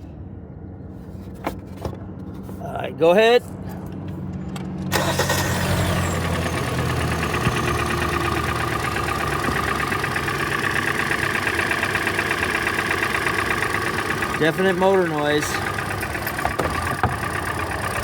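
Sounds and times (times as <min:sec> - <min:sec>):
car engine starting and idling: 0:03.6 - 0:18.0.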